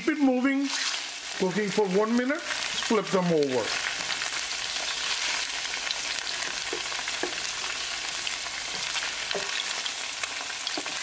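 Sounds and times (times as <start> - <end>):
tofu sizzling in frying pan: 0.6 - 11.0
wooden spatula knocking pan: 6.4 - 7.8, 8.6 - 9.8, 10.7 - 11.0.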